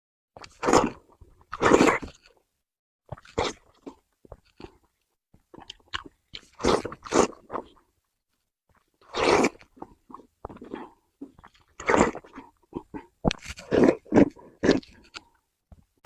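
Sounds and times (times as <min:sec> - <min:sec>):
person chewing and smacking: 0:00.4 - 0:02.4, 0:03.1 - 0:07.9, 0:08.7 - 0:16.0.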